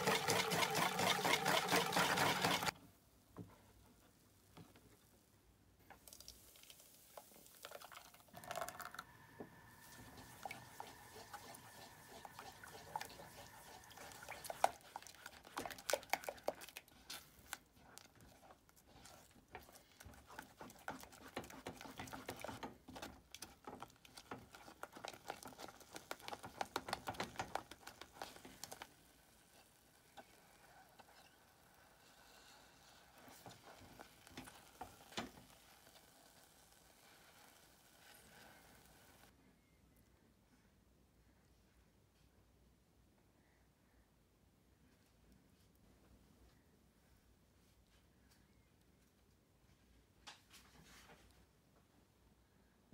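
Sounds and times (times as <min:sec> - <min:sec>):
spatula scraping custard in pot: 0:09.6 - 0:36.1.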